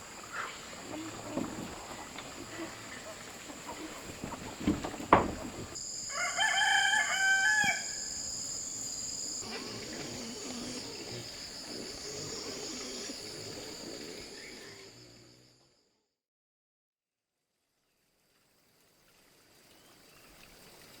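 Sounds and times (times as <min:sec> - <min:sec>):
sharp knocks: 0:04.6 - 0:05.8
rooster crowing: 0:06.0 - 0:08.3.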